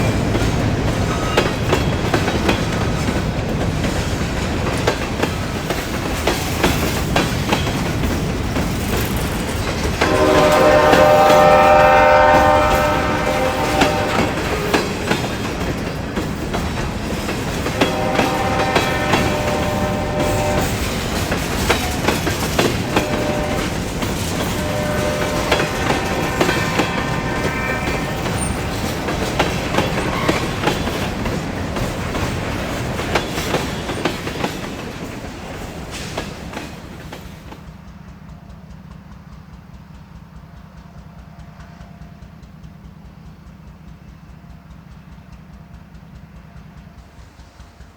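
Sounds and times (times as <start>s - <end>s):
freight cars rolling on rails: 0.0s - 43.1s
locomotive horn: 10.0s - 15.7s, 17.4s - 31.4s.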